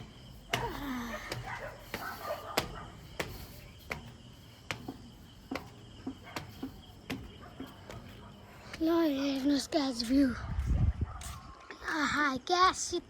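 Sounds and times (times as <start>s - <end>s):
footsteps climbing stairs: 0.0s - 10.3s.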